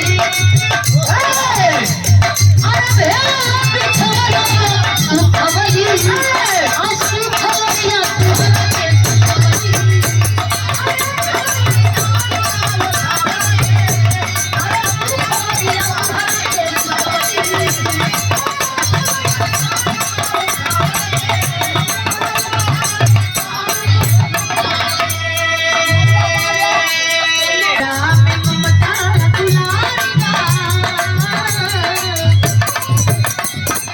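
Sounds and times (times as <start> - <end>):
hand drum beat: 0.0 - 24.9
rattling percussion: 0.0 - 33.9.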